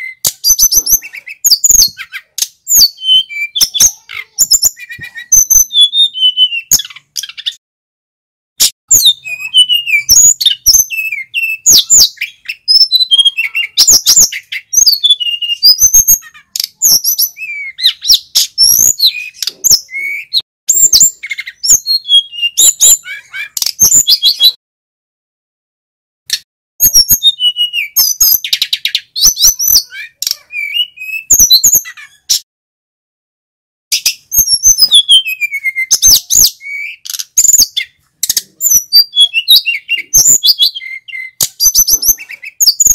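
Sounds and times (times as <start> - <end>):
flycatcher singing: 34.0 - 42.9.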